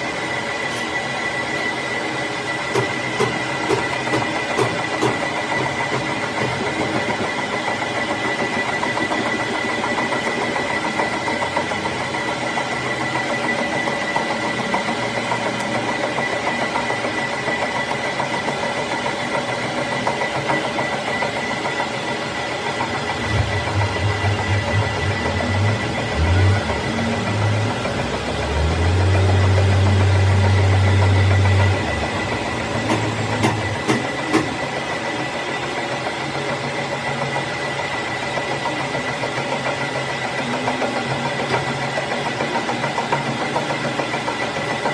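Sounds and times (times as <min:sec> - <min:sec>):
metal lathe whining: 0:00.0 - 0:44.9
deep hum: 0:23.1 - 0:33.1.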